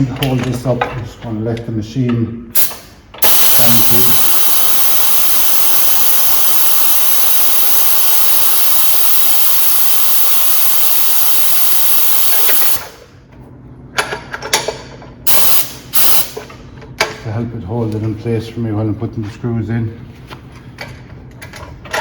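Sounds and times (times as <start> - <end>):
compressed air hissing: 2.6 - 13.0, 15.3 - 16.4
bursts of air: 2.6 - 13.1, 15.3 - 16.4.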